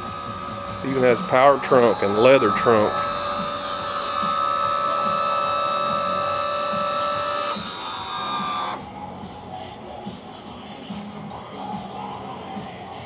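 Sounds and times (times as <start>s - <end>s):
electric motor whining: 0.0s - 9.0s.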